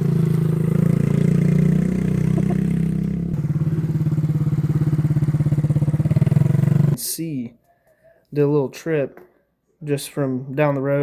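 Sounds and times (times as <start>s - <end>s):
small motorbike engine idling: 0.0s - 7.0s.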